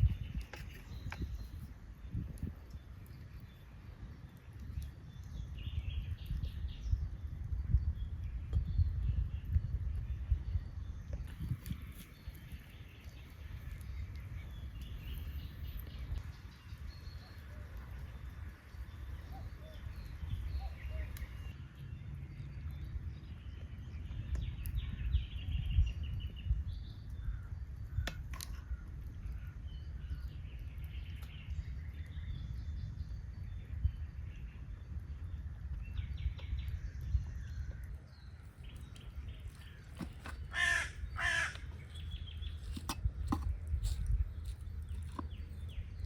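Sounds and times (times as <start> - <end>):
birds chirping: 0.0 - 46.0
loud bird calls: 36.4 - 42.9.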